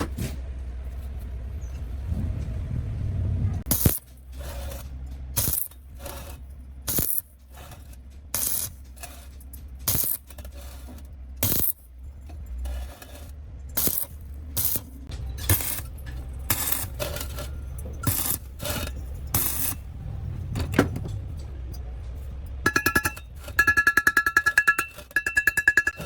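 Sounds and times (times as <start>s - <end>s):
steady low hum: 0.0s - 26.0s
short metallic clinks: 22.7s - 26.0s.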